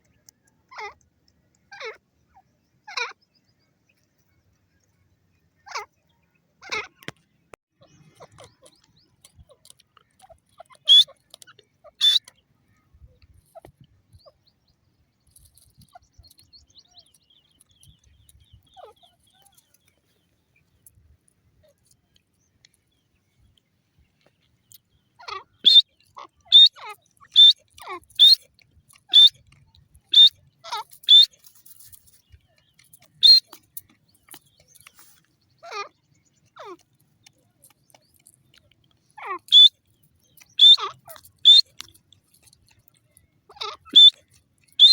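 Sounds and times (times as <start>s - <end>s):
francolin calling: 10.6s - 12.4s, 25.2s - 29.4s, 30.0s - 33.6s, 39.2s - 42.0s, 43.5s - 44.9s.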